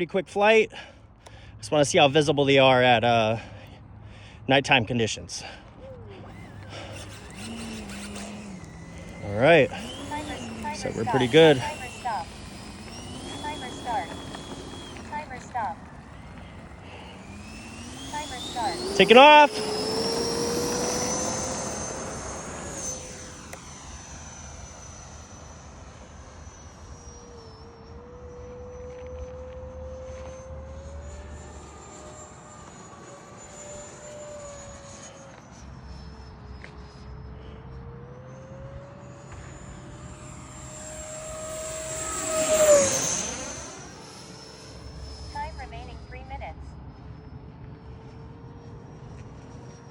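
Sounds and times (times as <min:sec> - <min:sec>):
electric ducted fans whining: 0:00.0 - 0:49.9.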